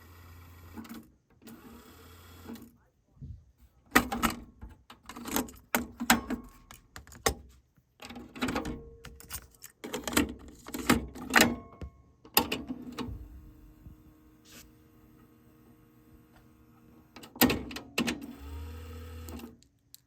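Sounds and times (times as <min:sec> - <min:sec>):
tape motor hum: 0:00.0 - 0:02.6, 0:12.7 - 0:17.5, 0:18.2 - 0:19.5.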